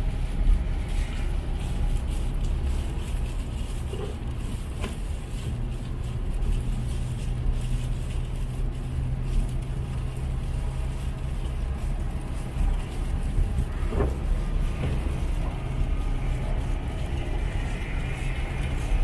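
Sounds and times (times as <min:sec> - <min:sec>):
low engine drone: 0:00.0 - 0:19.0
road noise: 0:00.0 - 0:19.0.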